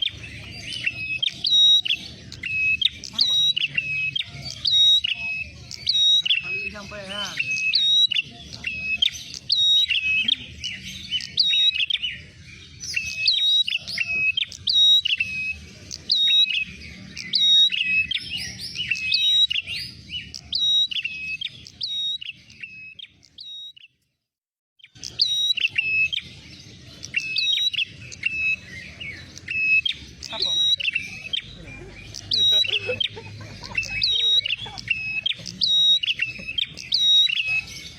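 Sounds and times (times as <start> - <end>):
bird chirping rapidly: 0.0 - 24.0, 24.8 - 37.9.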